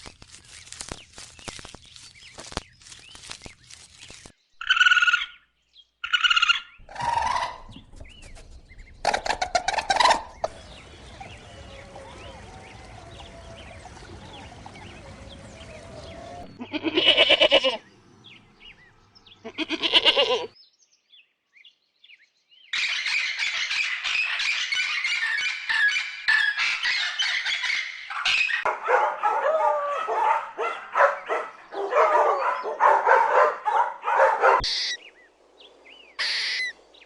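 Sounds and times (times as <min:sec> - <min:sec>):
loud pitched animal calls: 0:06.0 - 0:07.7, 0:09.0 - 0:17.8, 0:19.4 - 0:20.5, 0:34.6 - 0:35.0, 0:36.2 - 0:36.8
dense busy sound: 0:09.6 - 0:17.4.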